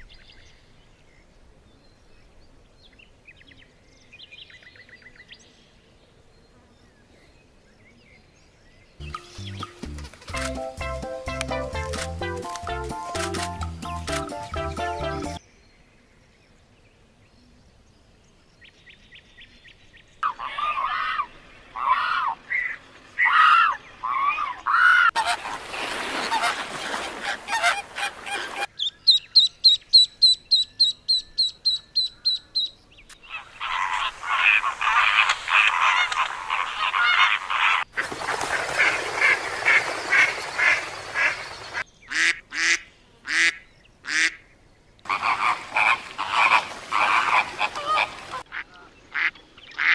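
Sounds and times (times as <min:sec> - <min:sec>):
rapid high bird chirps: 0:09.0 - 0:10.6, 0:28.7 - 0:37.8
birds honking: 0:20.2 - 0:28.8, 0:33.2 - 0:44.4, 0:45.1 - 0:49.9.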